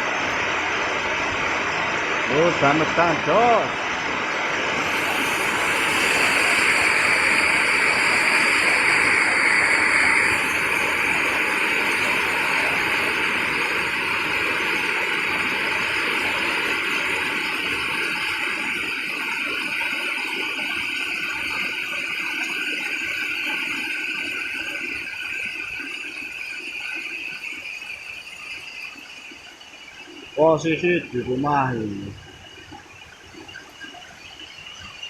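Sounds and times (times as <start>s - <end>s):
heavy rain pouring: 0.0s - 26.7s.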